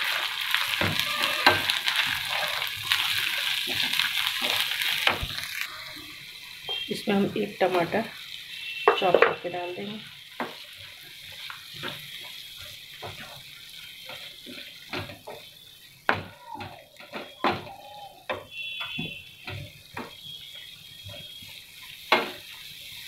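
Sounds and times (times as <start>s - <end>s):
food sizzling in hot oil: 0.0s - 23.0s
spatula knocking and scraping pan: 10.3s - 15.5s, 16.1s - 20.2s, 22.0s - 22.6s.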